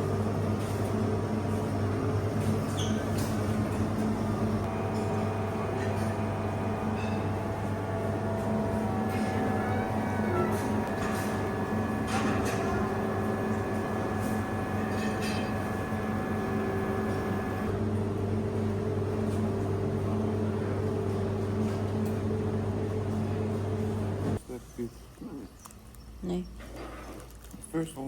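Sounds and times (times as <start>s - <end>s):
engine drone: 4.3s - 18.2s.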